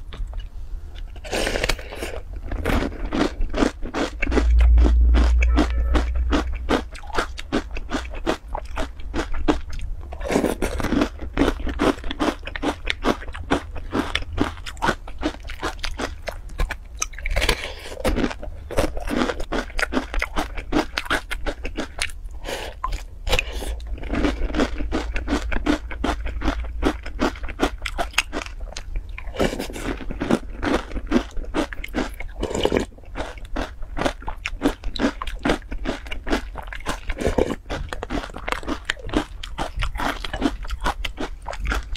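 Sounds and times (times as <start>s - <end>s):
crisp crunching of cereal: 10.2s - 16.2s, 23.3s - 41.9s.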